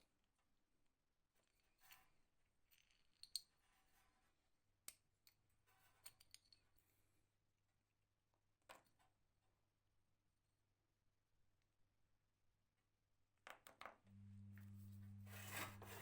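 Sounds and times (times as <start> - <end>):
small tools clicking and tapping: 2.7 - 3.5, 4.9 - 6.7
faint low hum: 14.1 - 16.0.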